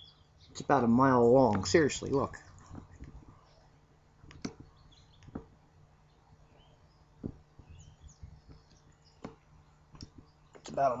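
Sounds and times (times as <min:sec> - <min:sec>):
faint birds chirping: 0:00.0 - 0:11.0
low steady hum: 0:00.0 - 0:11.0
sharp knocks: 0:04.2 - 0:05.6, 0:07.2 - 0:07.8, 0:08.4 - 0:10.8.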